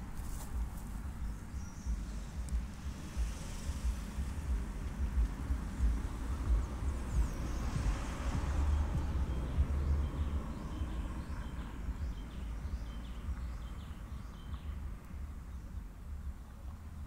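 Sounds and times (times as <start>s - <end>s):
wind rumble on microphone: 0.0s - 17.0s
small bird chirping: 6.4s - 14.9s.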